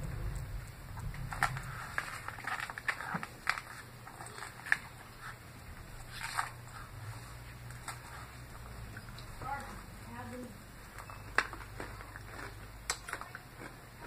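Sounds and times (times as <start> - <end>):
chewing crunchy salad: 1.0 - 9.9, 10.8 - 14.0.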